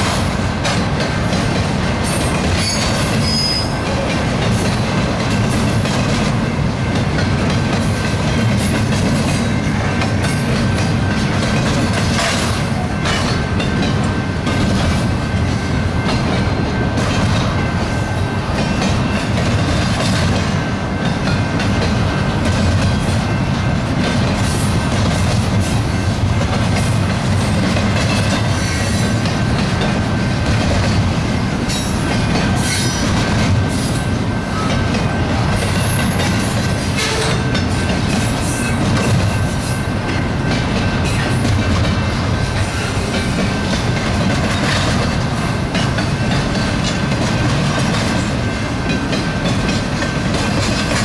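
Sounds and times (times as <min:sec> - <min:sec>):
freight train wheels rumbling: 0:00.0 - 0:51.0
wheels clicking over rail joints: 0:00.0 - 0:51.0
high-pitched wheel squeal: 0:02.6 - 0:03.8.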